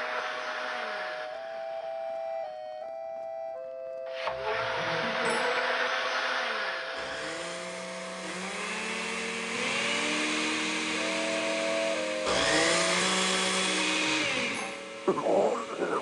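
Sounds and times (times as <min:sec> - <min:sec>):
cartoon rising whines: 0:04.2 - 0:15.8.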